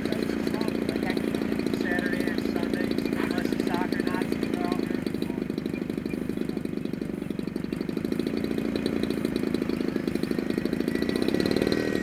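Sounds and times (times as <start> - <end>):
small gas engine idling: 0.0 - 12.0.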